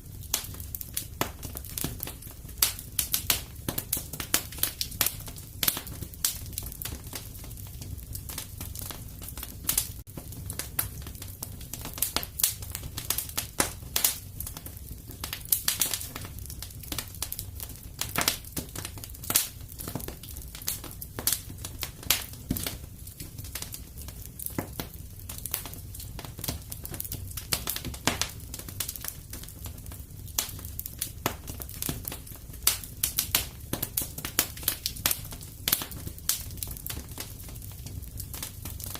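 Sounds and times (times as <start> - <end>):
fire crackling: 0.0 - 38.9.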